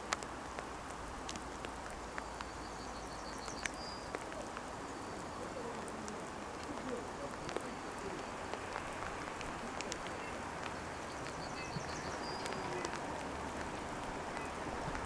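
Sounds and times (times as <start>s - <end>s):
faint dripping ticks: 0.0s - 15.0s
steady outdoor hiss: 0.0s - 15.0s
small bird chirping: 2.3s - 4.2s, 9.8s - 13.0s.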